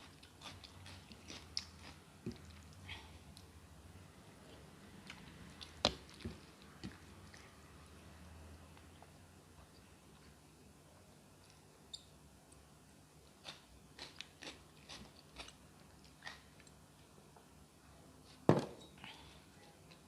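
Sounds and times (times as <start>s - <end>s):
chewing and crunching: 0.0s - 2.8s, 13.4s - 16.8s.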